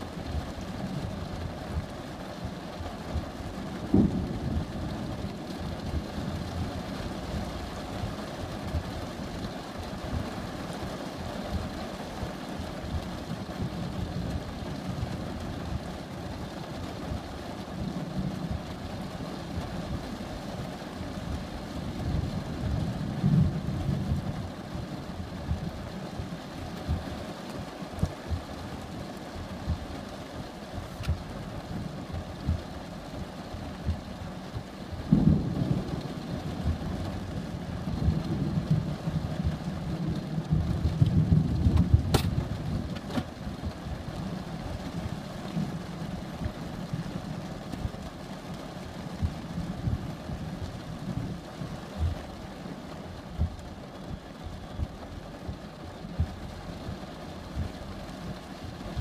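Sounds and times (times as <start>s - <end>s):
distant thunder rumbling: 3.1s - 8.8s, 34.6s - 47.1s.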